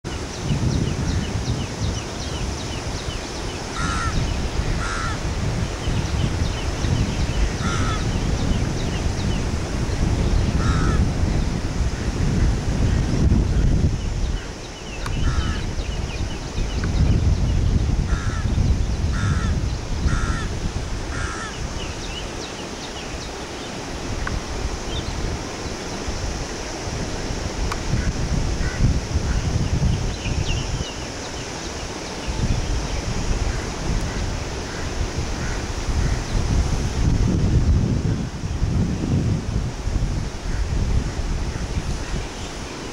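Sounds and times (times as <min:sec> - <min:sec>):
low wind rumble: 0:00.0 - 0:42.9
loud harsh bird calls: 0:03.5 - 0:05.3, 0:05.9 - 0:08.6, 0:10.5 - 0:11.1, 0:14.3 - 0:16.2, 0:18.1 - 0:22.8
small birds chirping: 0:13.5 - 0:20.4, 0:21.1 - 0:25.9, 0:29.6 - 0:34.3.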